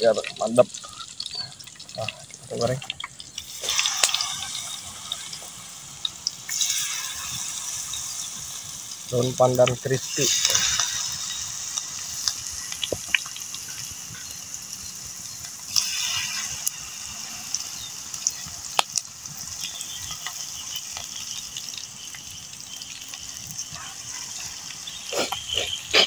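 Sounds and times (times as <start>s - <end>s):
leaves frying in hot oil: 0.0s - 26.0s
sharp pops: 12.7s - 13.4s.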